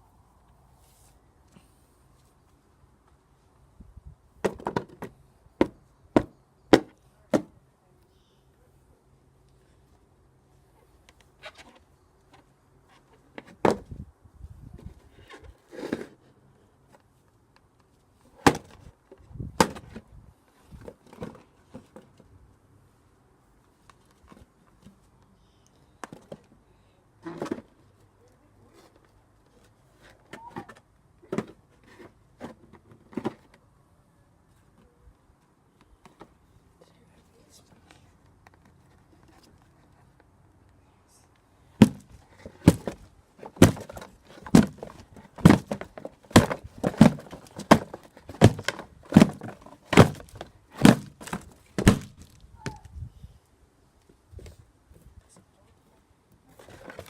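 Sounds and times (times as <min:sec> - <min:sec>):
pole thumping cardboard box: 0:18.4 - 0:18.8, 0:41.8 - 0:52.8.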